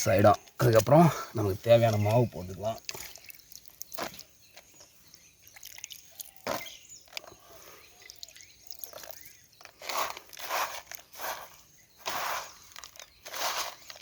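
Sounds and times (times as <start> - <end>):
hands scraping wet bait mix: 5.5 - 14.0.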